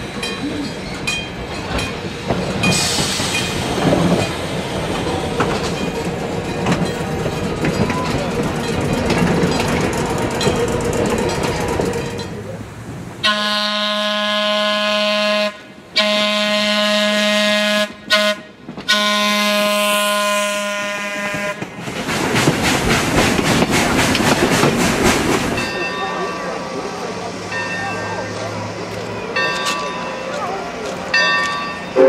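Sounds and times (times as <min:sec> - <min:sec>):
train wheels clicking over rail joints: 0:00.0 - 0:13.2, 0:17.9 - 0:19.7, 0:21.2 - 0:32.0
trolley car rumbling past: 0:00.0 - 0:32.0
trolley car air horn blasts: 0:13.2 - 0:21.7.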